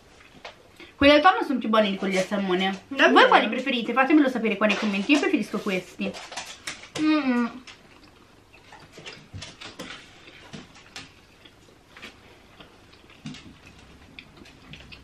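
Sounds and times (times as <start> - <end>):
quiet chewing: 6.1 - 15.0.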